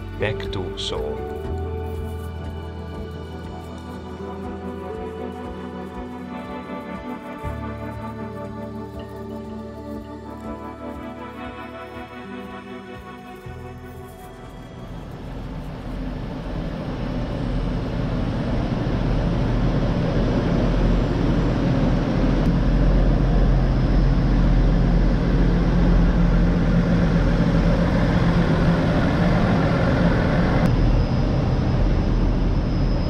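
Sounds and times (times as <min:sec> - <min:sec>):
faint high whine: 0:00.0 - 0:33.0
diesel train engine humming: 0:13.4 - 0:33.0.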